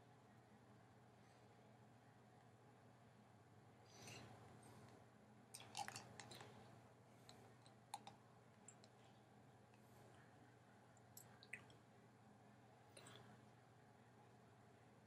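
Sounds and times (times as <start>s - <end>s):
fork clicks and eating smacks: 7.3s - 9.0s.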